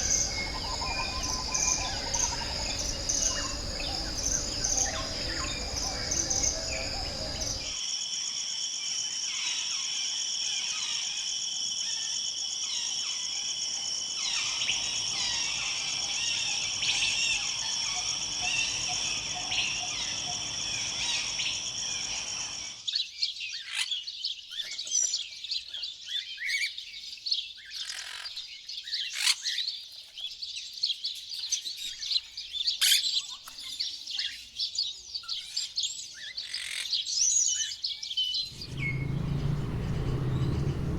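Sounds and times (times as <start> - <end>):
bird calls: 0.0 - 7.8, 38.3 - 40.9
flock of small birds chirping: 0.0 - 7.8, 12.7 - 40.9
high insect chorus: 0.0 - 23.4, 38.4 - 40.9.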